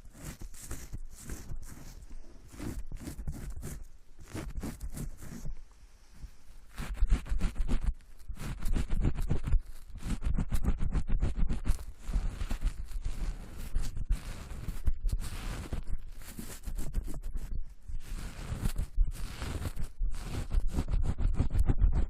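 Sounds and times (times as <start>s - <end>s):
scratching and rubbing crackles: 0.0s - 22.0s.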